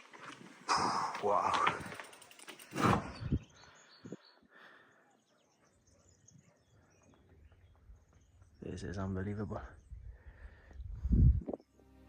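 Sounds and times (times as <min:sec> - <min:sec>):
faint distant bird chirps: 0:02.2 - 0:11.8
wind rush on microphone: 0:02.8 - 0:04.2, 0:09.7 - 0:11.6.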